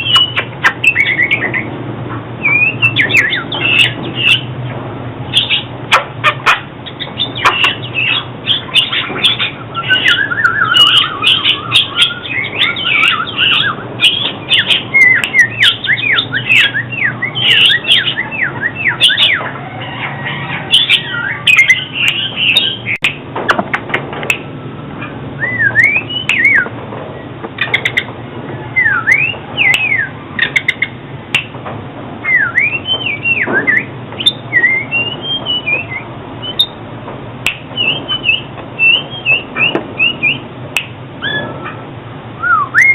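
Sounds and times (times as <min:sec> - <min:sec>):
bird singing whistled notes: 0:00.0 - 0:01.7, 0:02.4 - 0:04.5, 0:05.3 - 0:05.7, 0:06.9 - 0:19.5, 0:20.3 - 0:23.2, 0:25.4 - 0:26.7, 0:28.6 - 0:31.5, 0:32.2 - 0:36.8, 0:37.5 - 0:41.6, 0:42.4 - 0:42.9.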